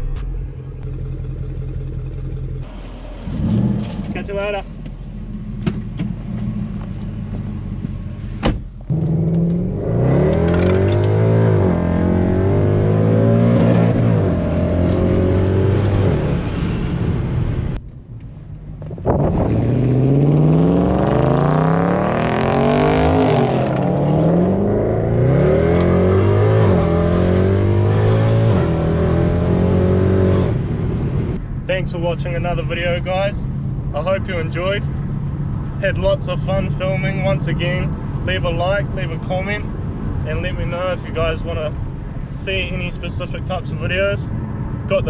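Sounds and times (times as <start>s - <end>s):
car exhaust accelerating: 0.0s - 8.1s, 8.8s - 32.8s.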